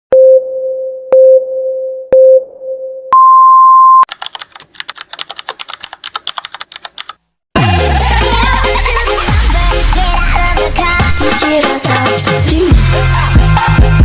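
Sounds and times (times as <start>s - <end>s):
electronic countdown beeps: 0.1s - 4.1s
fast sharp clicks: 4.1s - 7.2s.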